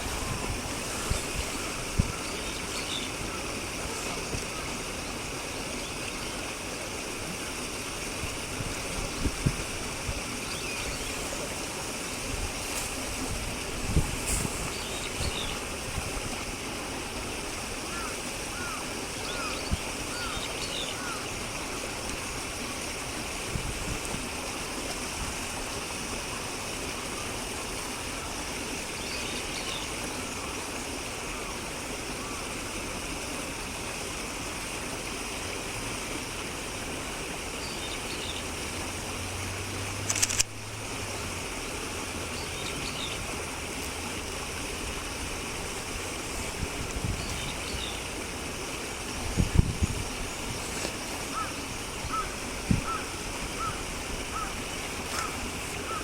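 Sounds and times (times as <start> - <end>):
steady rushing noise: 0.0 - 5.5
faint bird calls: 51.3 - 56.0.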